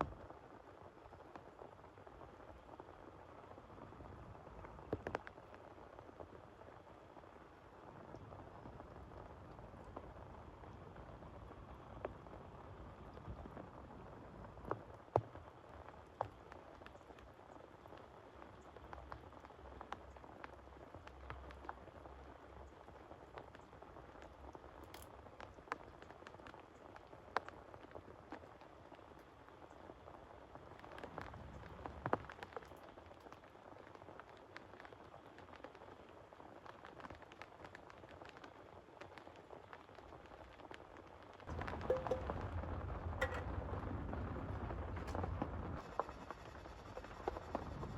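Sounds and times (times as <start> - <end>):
rain patter: 0.0 - 47.9
raindrops striking sharply: 41.4 - 45.8
drops striking a surface: 41.8 - 42.5, 43.2 - 43.6.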